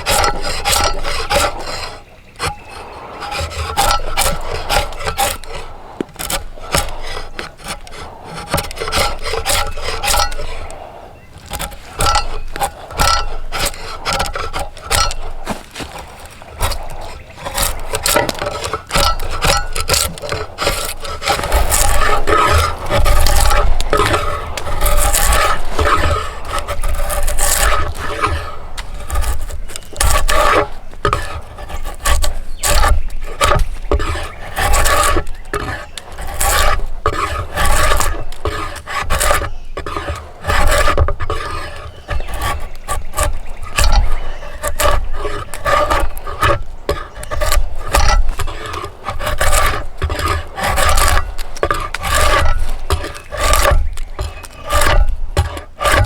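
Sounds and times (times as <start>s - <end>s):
steel scraping wood: 0.0s - 56.0s.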